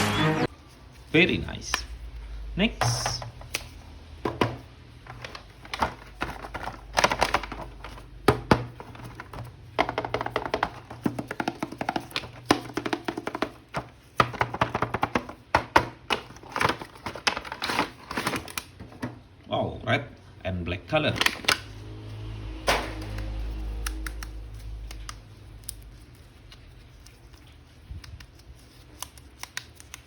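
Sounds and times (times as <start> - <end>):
plastic packaging crinkling: 4.9 - 12.6.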